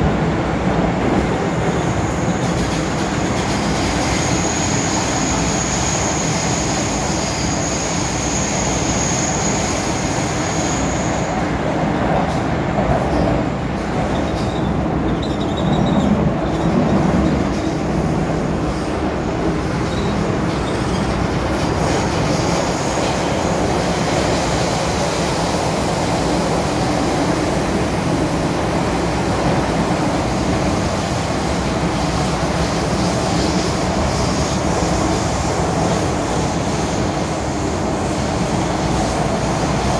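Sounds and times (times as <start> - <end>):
train rumbling along track: 0.0 - 39.9
high squeal: 14.2 - 16.7.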